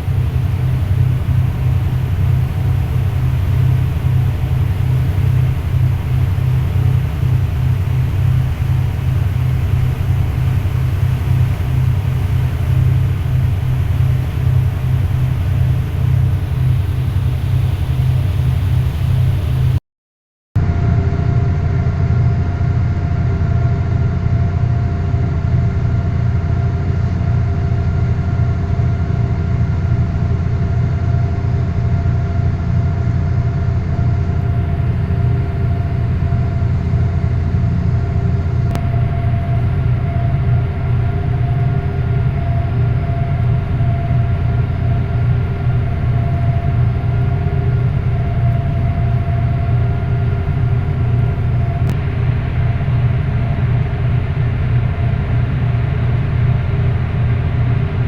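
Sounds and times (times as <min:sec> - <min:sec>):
ship engine droning: 0:00.0 - 0:19.8, 0:33.4 - 0:58.0.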